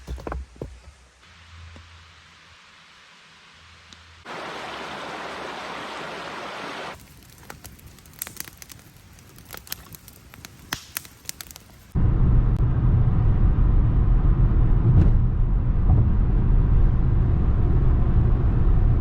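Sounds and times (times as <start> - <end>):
faint hiss: 0.9 - 12.0
campfire crackling: 2.2 - 12.0
stream water flowing: 4.2 - 7.0.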